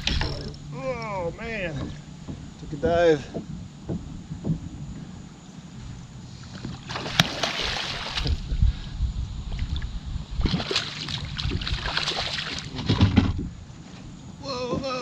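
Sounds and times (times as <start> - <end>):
water sloshing against kayak: 0.0 - 8.6, 9.4 - 15.0.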